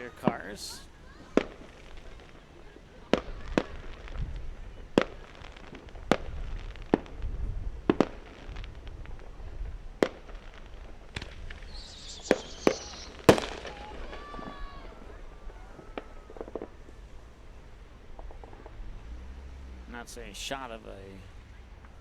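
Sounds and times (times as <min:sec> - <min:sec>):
distant firecrackers cracking: 0:00.0 - 0:22.0
high whistling hiss: 0:11.2 - 0:17.6.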